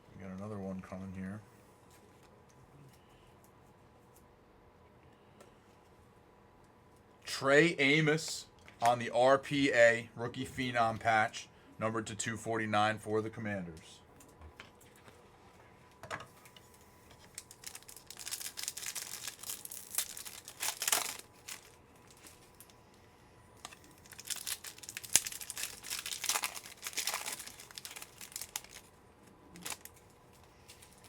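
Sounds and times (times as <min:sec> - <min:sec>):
card pack wrappers crinkling and tearing: 0:17.2 - 0:22.8, 0:23.6 - 0:31.0.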